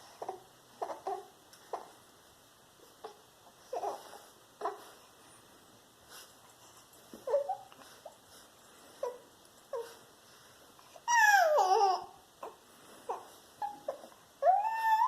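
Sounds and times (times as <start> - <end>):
dog whining and yipping: 7.2 - 7.7, 11.0 - 11.8, 13.1 - 15.0.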